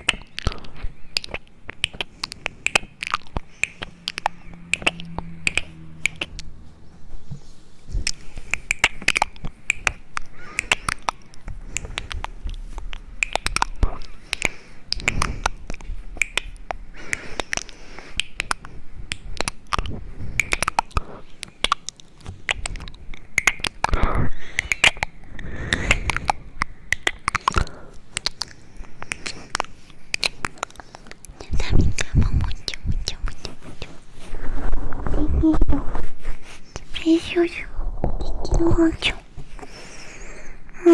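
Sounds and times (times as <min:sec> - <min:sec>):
sharp clicks and taps: 0:00.0 - 0:06.6, 0:08.0 - 0:33.5
soft rustling: 0:06.4 - 0:10.3, 0:28.6 - 0:40.0.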